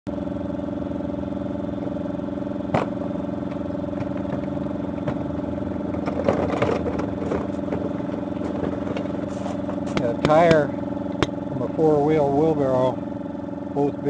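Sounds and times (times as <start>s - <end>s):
engine running steadily: 0.1s - 14.0s.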